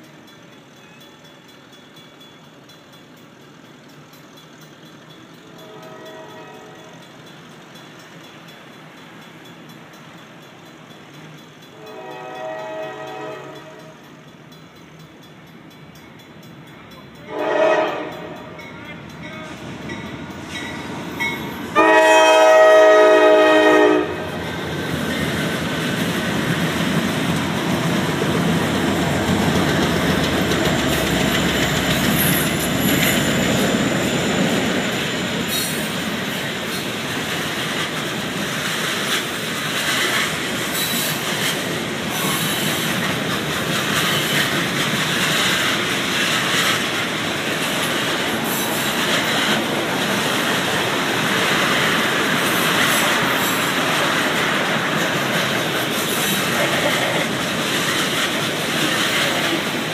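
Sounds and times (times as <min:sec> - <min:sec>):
train cars rolling past: 0:00.0 - 0:59.9
train horn blasts: 0:05.6 - 0:06.9, 0:11.7 - 0:14.0, 0:17.2 - 0:19.6, 0:21.7 - 0:24.4.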